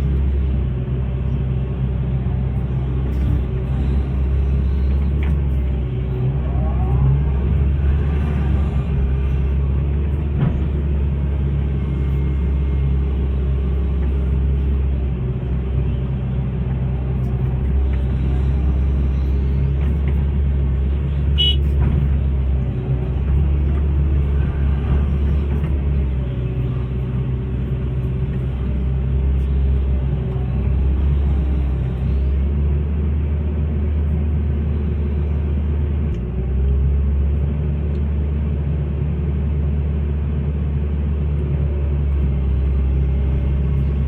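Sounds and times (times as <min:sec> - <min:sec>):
excavator diesel engine droning: 0:00.0 - 0:44.0.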